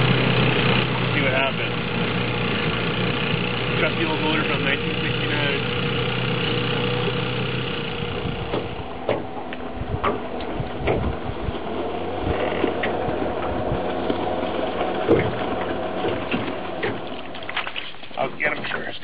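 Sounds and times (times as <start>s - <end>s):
outboard boat motor running: 0.0s - 19.0s
sharp clicks and knocks: 8.4s - 11.1s, 12.3s - 18.8s.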